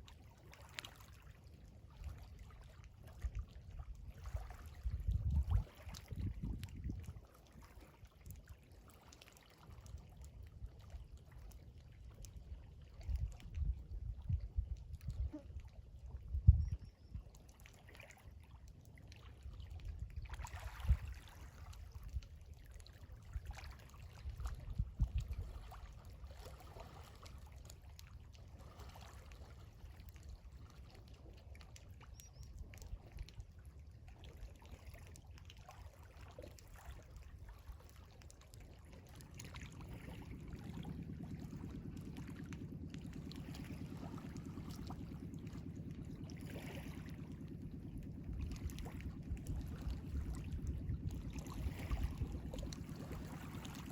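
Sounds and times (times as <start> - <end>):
small waves washing: 33.5 - 53.9
steady low hum: 36.7 - 53.9
low rumbles: 39.7 - 53.9.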